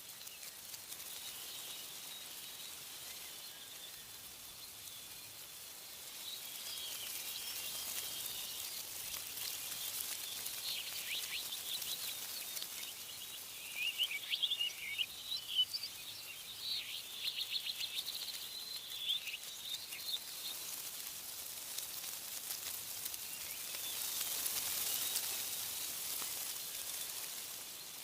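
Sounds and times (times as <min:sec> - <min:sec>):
steady high hiss: 0:00.0 - 0:28.0
birds chirping and trilling: 0:06.2 - 0:20.7.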